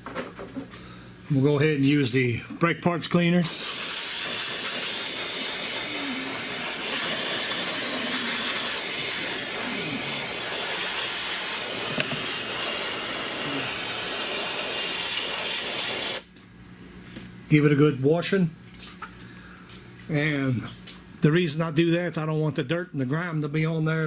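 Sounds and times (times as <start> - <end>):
aerosol can spraying: 3.4 - 16.3.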